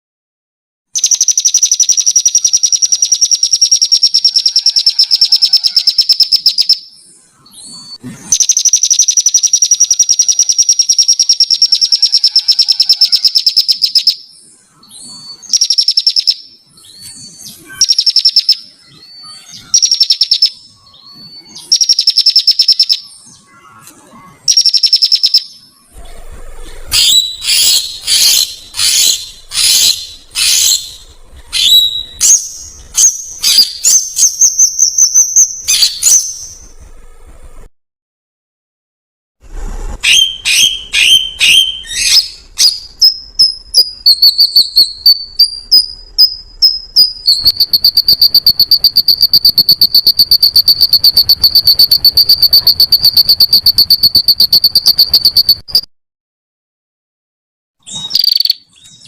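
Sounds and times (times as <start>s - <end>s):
songbird trilling: 7.8s - 23.1s, 26.9s - 36.6s.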